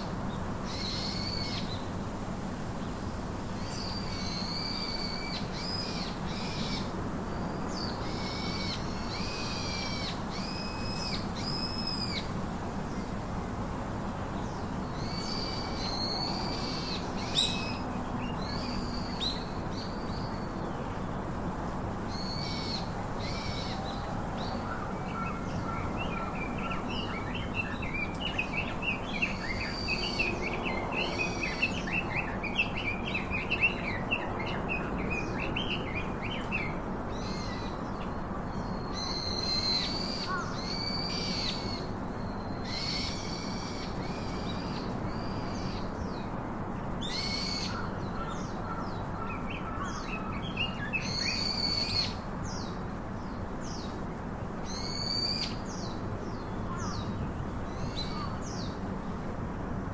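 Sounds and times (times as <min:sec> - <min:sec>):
birds chattering and calling: 0:22.1 - 0:41.9, 0:47.0 - 0:52.8, 0:54.7 - 0:58.8.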